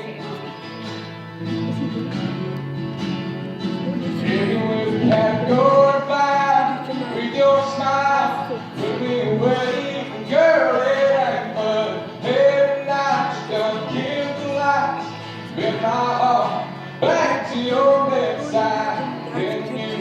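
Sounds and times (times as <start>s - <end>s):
acoustic guitar: 0.0s - 20.0s
man singing country ballad: 3.6s - 20.0s.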